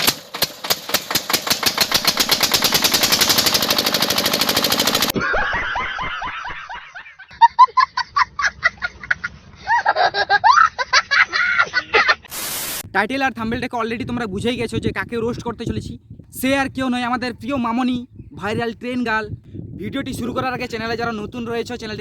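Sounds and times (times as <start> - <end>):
small generator engine putter: 0.0 - 5.2
voices laughing: 5.1 - 12.3.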